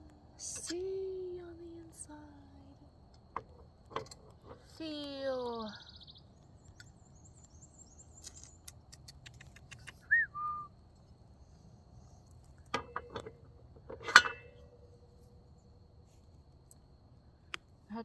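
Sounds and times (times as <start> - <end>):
two-note whistle: 10.0 - 10.7
ringing metal clank: 12.7 - 14.8.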